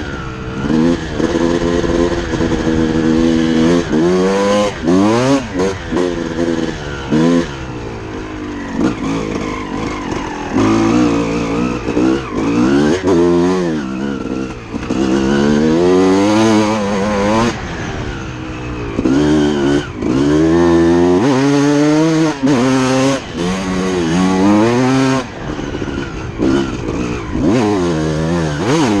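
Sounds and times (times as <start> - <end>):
motocross bike engine revving: 0.0 - 29.0.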